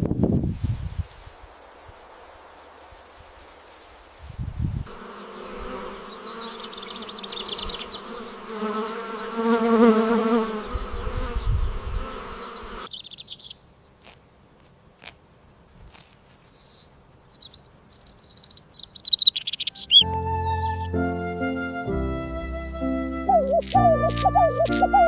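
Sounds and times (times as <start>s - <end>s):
insect buzzing: 4.8s - 13.4s
bird chirp: 6.0s - 8.4s, 12.4s - 13.7s, 16.5s - 21.0s.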